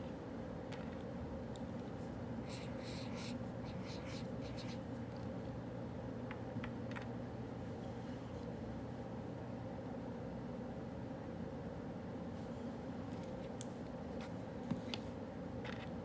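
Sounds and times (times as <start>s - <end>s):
low room hum: 0.0s - 16.0s
pen scratching on paper: 2.5s - 4.8s.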